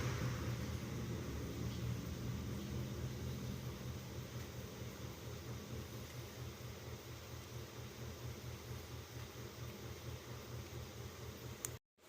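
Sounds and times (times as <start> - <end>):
low rumble: 0.0 - 6.1
steady hiss: 0.0 - 11.8.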